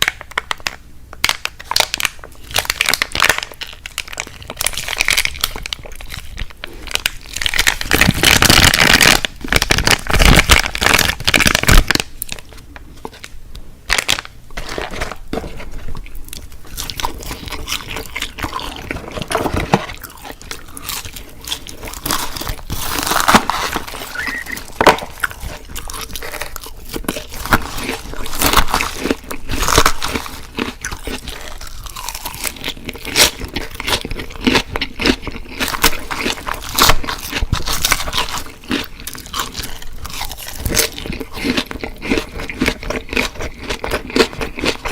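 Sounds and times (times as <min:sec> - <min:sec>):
wet chewing: 0:15.8 - 0:44.9
crunching bites of crispy food: 0:15.9 - 0:44.9.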